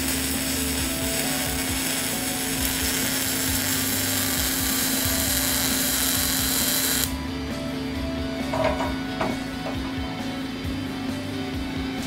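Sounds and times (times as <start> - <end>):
welding arc hissing: 0.0 - 7.2.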